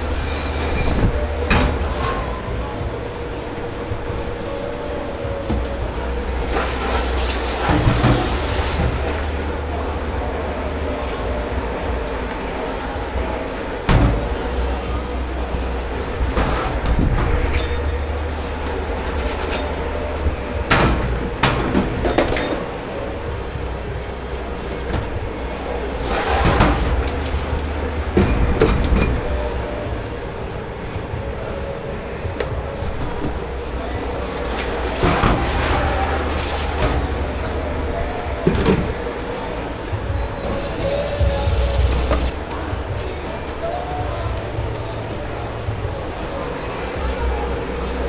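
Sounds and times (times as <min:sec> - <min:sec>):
water spray hissing: 0:00.0 - 0:02.0, 0:06.1 - 0:09.9, 0:15.6 - 0:17.1, 0:25.6 - 0:28.1, 0:34.1 - 0:38.0, 0:39.2 - 0:42.4
kitchen machinery hum: 0:00.0 - 0:48.0
dishware clanks: 0:16.3 - 0:18.1.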